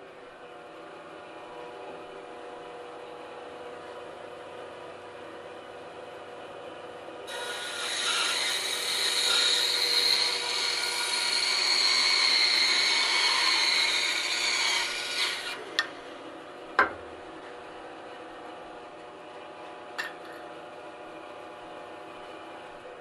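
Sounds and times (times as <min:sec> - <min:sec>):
bandsaw cutting wood: 0:07.3 - 0:15.9
saw motor hum: 0:07.3 - 0:16.6.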